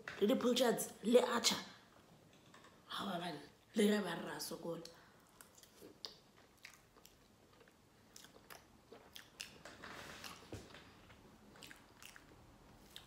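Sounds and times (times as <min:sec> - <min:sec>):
faint chewing of noodles: 0:05.2 - 0:13.0.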